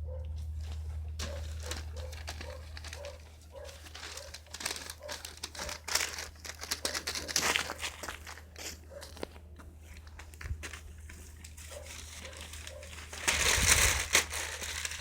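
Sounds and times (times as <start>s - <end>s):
steady low hum: 0.0s - 6.8s
wood fire crackling and popping: 3.8s - 9.2s.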